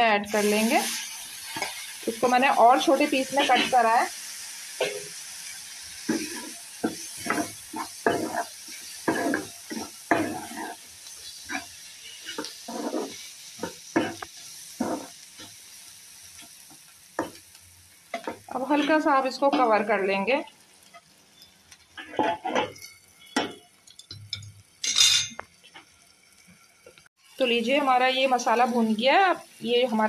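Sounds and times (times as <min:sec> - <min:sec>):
vegetables sizzling in oil: 0:00.0 - 0:30.0
metal skimmer scraping pan: 0:22.0 - 0:25.8.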